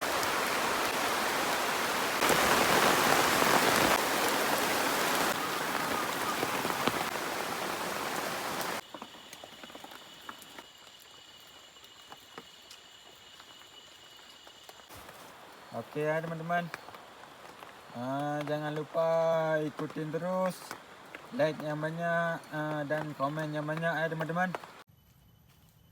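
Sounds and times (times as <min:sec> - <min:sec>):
heavy rain pouring: 0:00.0 - 0:08.8, 0:15.4 - 0:24.8.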